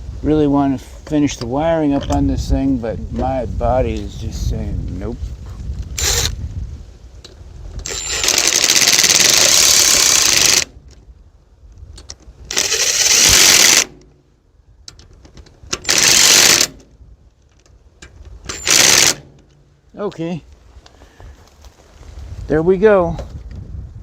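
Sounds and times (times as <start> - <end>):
power screwdriver driving screws: 6.0 - 6.4, 7.8 - 10.7, 12.5 - 14.0, 15.7 - 16.9, 18.4 - 19.4.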